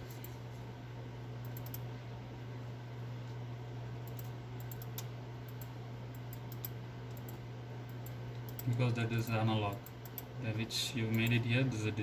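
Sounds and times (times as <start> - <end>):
steady low hum: 0.0 - 12.0
computer clicking: 1.4 - 1.9, 4.0 - 10.3, 11.0 - 11.4.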